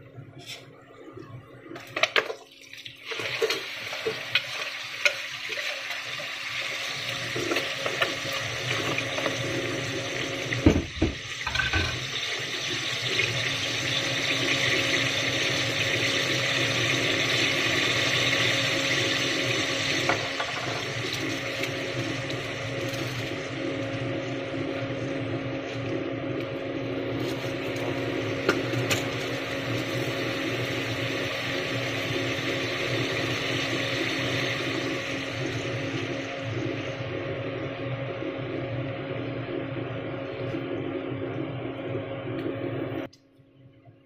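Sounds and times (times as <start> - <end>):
food sizzling in a pot: 1.9 - 23.8, 27.1 - 36.9
faint steady hum: 3.1 - 44.0.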